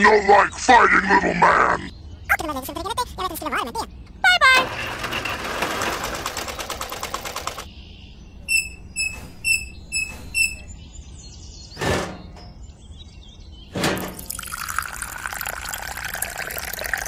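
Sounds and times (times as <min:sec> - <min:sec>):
short high electronic beeps: 0:08.4 - 0:10.7.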